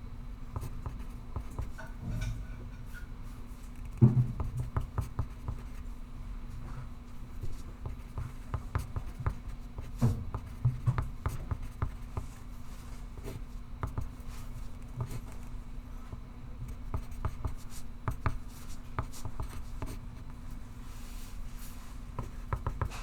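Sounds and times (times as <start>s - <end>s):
pencil scratching on paper: 7.5s - 12.5s, 16.8s - 20.0s, 22.2s - 23.0s.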